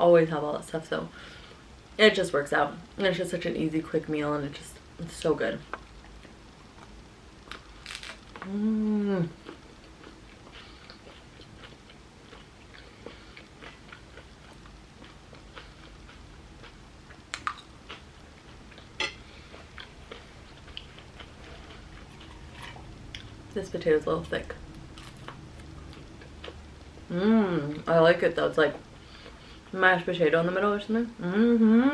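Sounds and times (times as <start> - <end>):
crunchy bites of chips: 7.5 - 8.5, 24.9 - 26.5
person humming: 8.4 - 9.4, 27.1 - 27.8, 31.2 - 31.9
person chewing food: 9.4 - 23.5, 24.7 - 27.1, 28.9 - 29.7.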